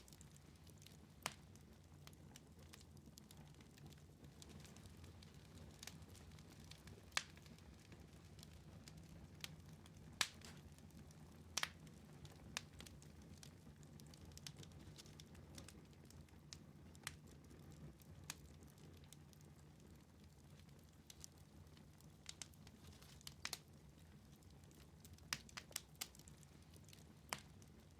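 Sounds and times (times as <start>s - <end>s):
wood fire crackling: 0.0s - 27.9s.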